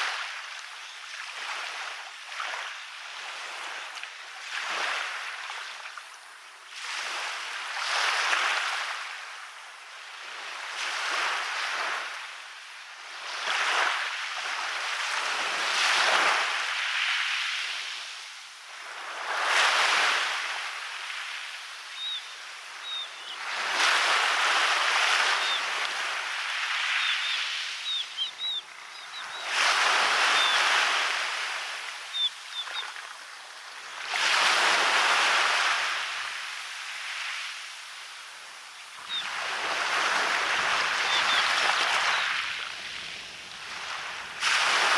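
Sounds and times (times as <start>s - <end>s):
sea waves breaking on beach: 0.0s - 44.9s
faint high chirps: 21.9s - 23.4s, 26.9s - 29.5s, 32.1s - 33.0s, 41.0s - 42.4s.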